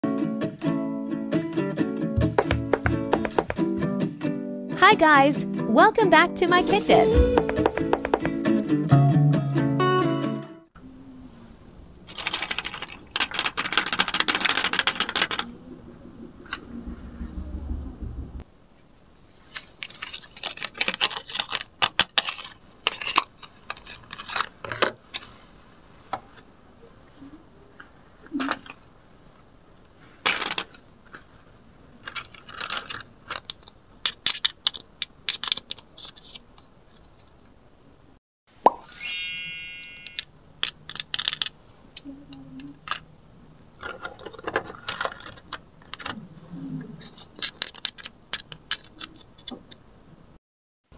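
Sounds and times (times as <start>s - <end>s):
toy pieces clattering in basket: 12.1s - 15.4s.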